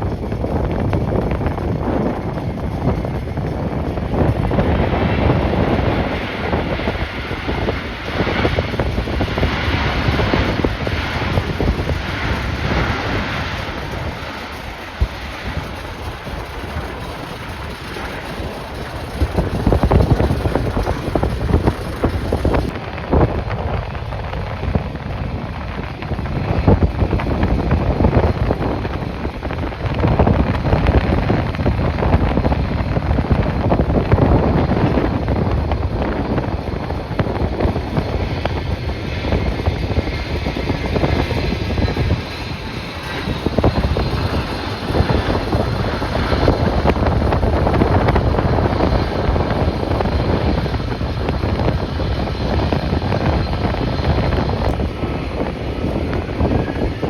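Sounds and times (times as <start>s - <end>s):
jet engines: 0.0s - 57.0s
wind buffeting microphone: 0.0s - 57.0s
faint engine whine: 33.5s - 57.0s.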